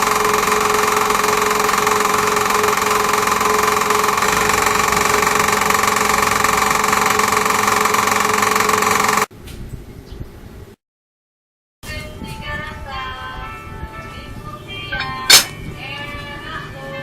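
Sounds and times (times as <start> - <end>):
lathe motor humming: 0.0 - 9.3.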